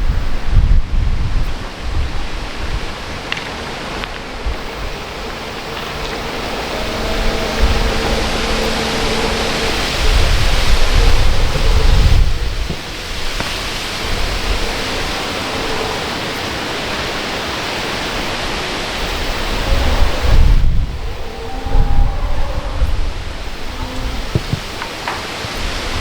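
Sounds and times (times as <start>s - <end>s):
steady rushing noise: 0.0s - 26.0s
wind buffeting microphone: 0.0s - 26.0s.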